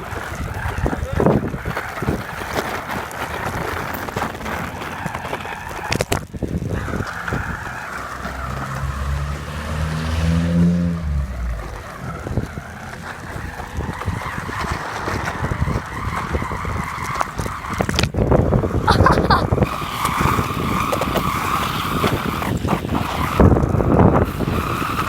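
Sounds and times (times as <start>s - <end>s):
bicycle clattering over bumps: 0.0s - 9.7s, 10.6s - 18.9s
wind buffeting microphone: 0.0s - 25.0s.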